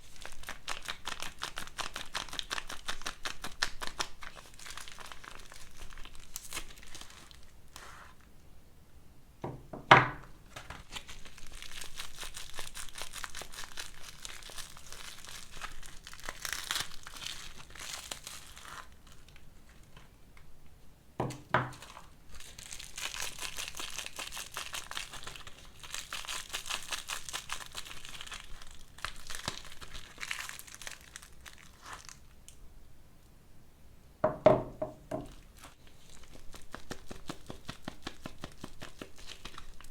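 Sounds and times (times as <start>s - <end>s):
wrappers crinkling and tearing: 0.0s - 8.3s, 10.4s - 20.2s, 21.7s - 32.6s, 35.3s - 39.9s
sharp knocks: 34.2s - 35.3s.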